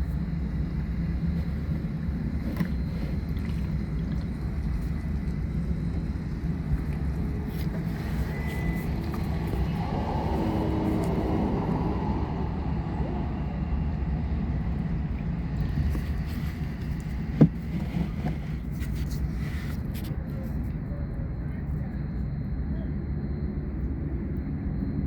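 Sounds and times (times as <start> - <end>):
engine running low rumble: 0.0 - 25.0.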